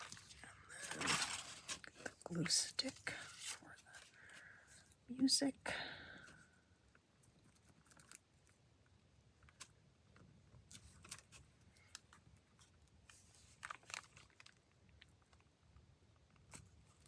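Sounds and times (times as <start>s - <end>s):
paper rustling: 0.0s - 4.6s, 10.7s - 14.6s.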